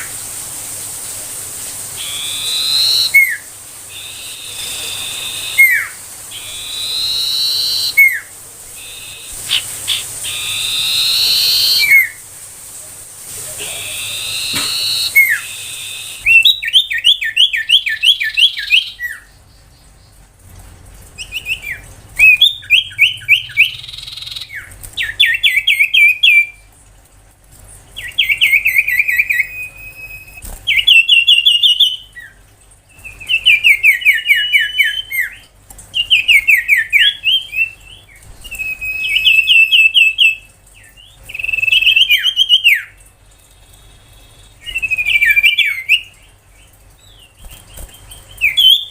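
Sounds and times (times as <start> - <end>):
bird singing sharp sliding notes: 4.0 - 12.2, 13.8 - 16.7.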